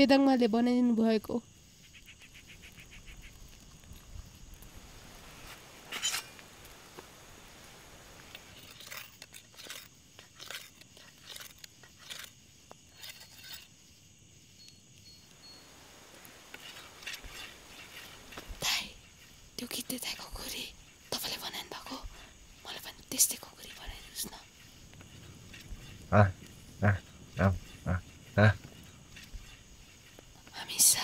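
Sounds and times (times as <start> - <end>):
blade scraping on sharpening stone: 5.9 - 6.3, 12.9 - 13.7.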